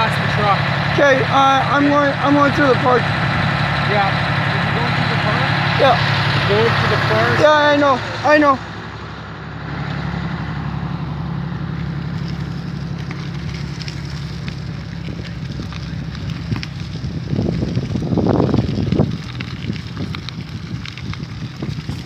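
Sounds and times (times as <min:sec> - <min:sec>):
steady engine hum: 0:00.0 - 0:22.0
wind buffeting microphone: 0:00.0 - 0:22.0
crackles and ticks: 0:11.7 - 0:22.0.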